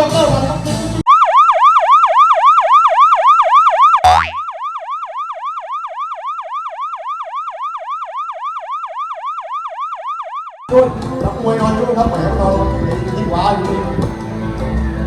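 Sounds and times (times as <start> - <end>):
electronic yelp siren: 1.1 - 10.7.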